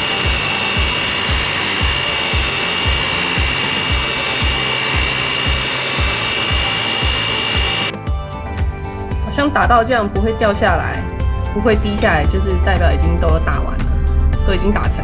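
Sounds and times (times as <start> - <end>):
electric hand mixer whining: 0.0 - 8.0.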